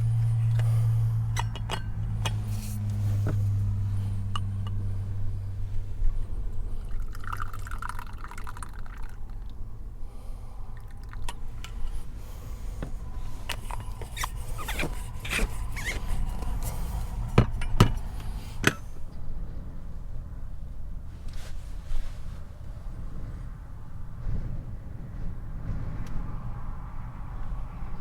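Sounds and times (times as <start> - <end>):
sharp clicks and knocks: 0.0 - 3.6, 11.6 - 18.9
liquid pouring: 6.8 - 9.5.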